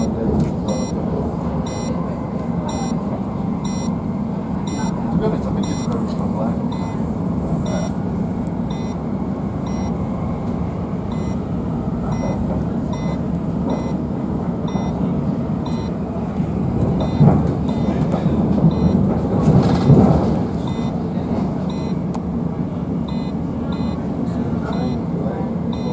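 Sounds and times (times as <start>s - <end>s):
faint high beep: 0.0s - 1.0s, 1.6s - 2.0s, 2.6s - 4.0s, 4.6s - 5.0s, 5.6s - 6.0s, 6.7s - 7.0s, 7.6s - 8.0s, 8.7s - 9.0s, 9.6s - 10.0s, 11.1s - 11.4s, 12.0s - 14.0s, 14.7s - 15.1s, 15.7s - 15.9s, 17.0s - 18.0s, 20.6s - 21.0s, 21.7s - 22.0s, 23.1s - 24.0s, 24.6s - 25.0s
electric train rumble: 0.0s - 25.9s.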